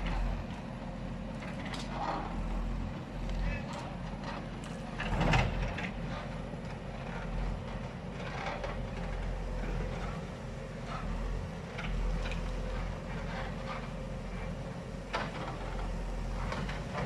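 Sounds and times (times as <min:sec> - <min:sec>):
heavy vehicle engine rumbling: 0:00.0 - 0:17.0.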